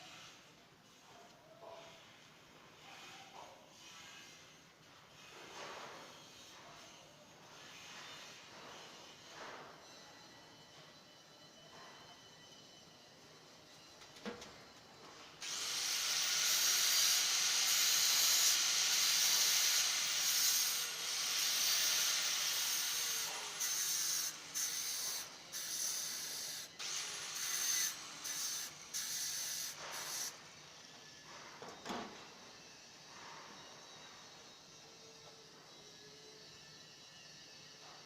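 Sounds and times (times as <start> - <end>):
loud hissing spray: 15.4 - 24.9.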